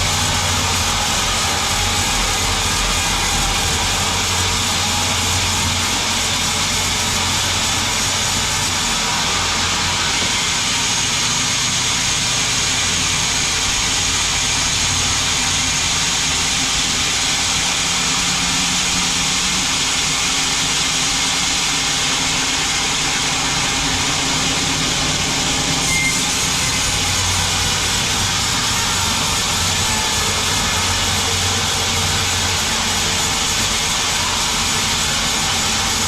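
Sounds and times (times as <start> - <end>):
bandsaw running: 0.0 - 36.0.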